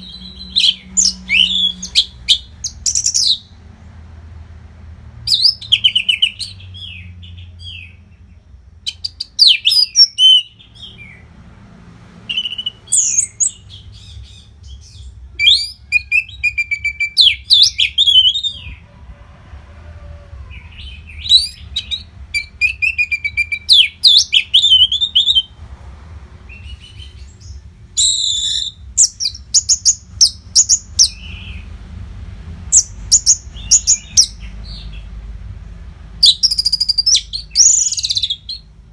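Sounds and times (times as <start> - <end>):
thrush singing whistles and trills: 0.0 - 3.6, 5.3 - 8.0, 8.9 - 11.2, 12.2 - 18.8, 20.6 - 25.6, 26.5 - 31.6, 32.7 - 35.1, 36.2 - 38.7.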